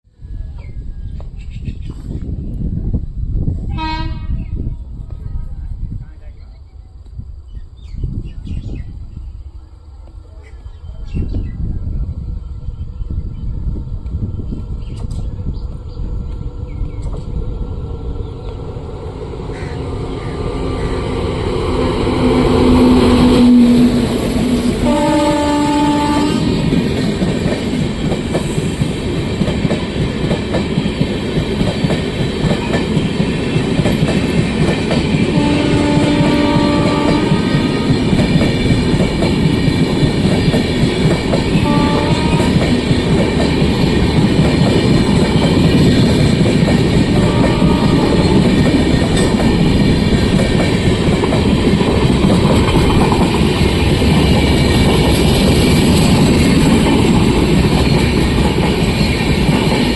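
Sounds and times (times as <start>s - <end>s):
train wheels rumbling on rail: 0.2s - 59.9s
train horn: 3.7s - 4.6s, 22.2s - 26.7s, 35.3s - 37.9s, 41.5s - 42.8s, 47.1s - 48.8s.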